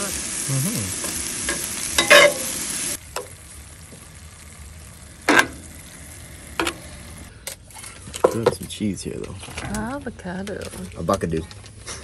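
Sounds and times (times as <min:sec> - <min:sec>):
meat sizzling in a skillet: 0:00.0 - 0:07.3.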